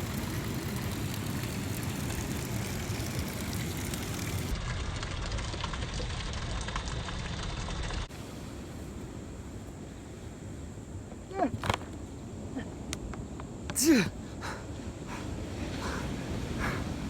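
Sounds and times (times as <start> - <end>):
wind rumbling on microphone: 14.1 - 17.0.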